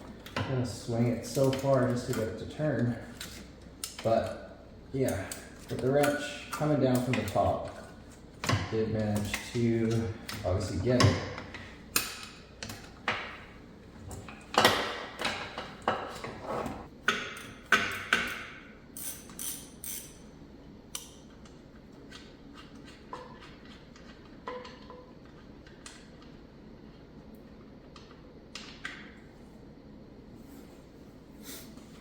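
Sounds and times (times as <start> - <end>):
metal tools clinking: 19.0 - 20.3.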